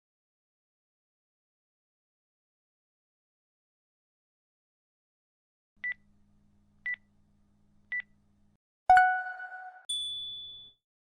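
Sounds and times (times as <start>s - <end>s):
lower ringing tone: 8.9s - 10.8s.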